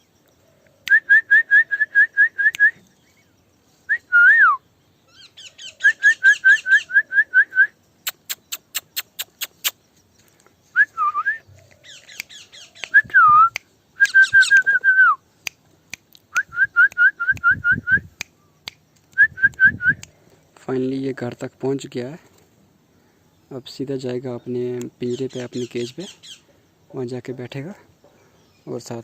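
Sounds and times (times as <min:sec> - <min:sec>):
person whistling: 0:00.8 - 0:02.8, 0:03.9 - 0:04.6, 0:05.9 - 0:08.5, 0:10.8 - 0:11.5, 0:12.8 - 0:15.2, 0:16.3 - 0:18.2, 0:19.1 - 0:20.1
sharp clicks: 0:08.0 - 0:09.8, 0:11.6 - 0:17.5, 0:18.2 - 0:20.2.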